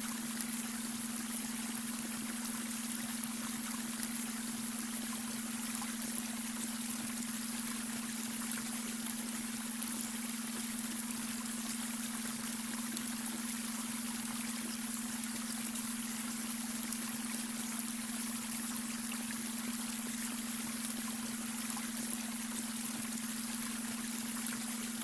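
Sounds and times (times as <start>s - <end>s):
brook flowing over stones: 0.0s - 25.0s.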